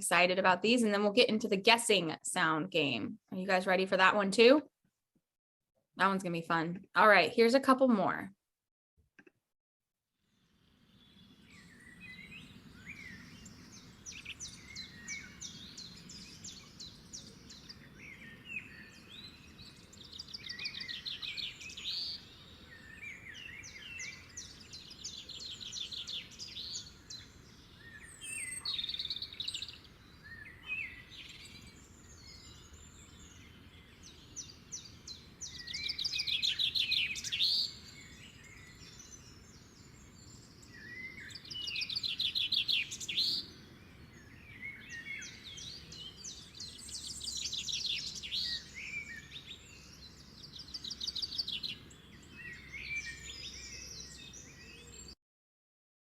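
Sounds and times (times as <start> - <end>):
songbirds singing and chirping: 10.4 - 55.2.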